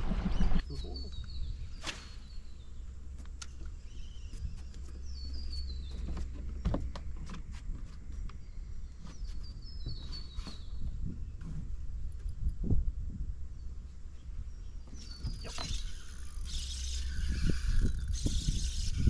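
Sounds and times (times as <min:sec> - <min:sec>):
bird calling: 0:14.7 - 0:19.0
fishing rods and reels clicking: 0:15.5 - 0:19.0.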